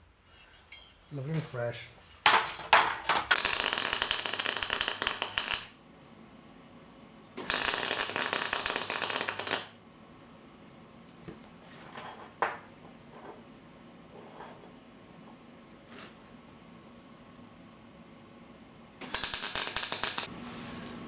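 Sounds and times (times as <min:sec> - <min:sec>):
arc welding crackling: 0:03.2 - 0:05.8, 0:07.4 - 0:09.8, 0:19.0 - 0:20.3.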